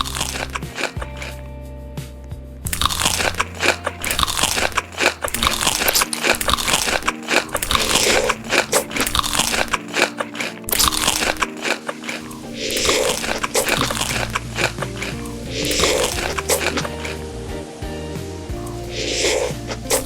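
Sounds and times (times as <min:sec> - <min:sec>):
crunching and chewing crisp food: 0:00.0 - 0:01.4, 0:02.7 - 0:17.3, 0:18.5 - 0:20.0.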